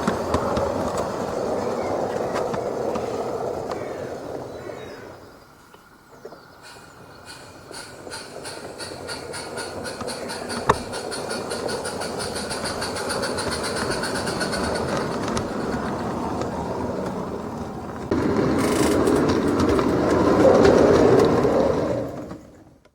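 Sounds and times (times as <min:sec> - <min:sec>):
rolling rumble: 0:00.0 - 0:22.9
model train wheels clacking: 0:06.6 - 0:22.9.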